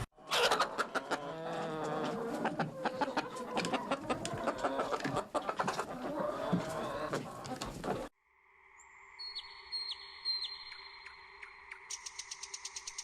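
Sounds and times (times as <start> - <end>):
birds clucking: 0.0 - 8.1
birds chirping: 9.2 - 13.0.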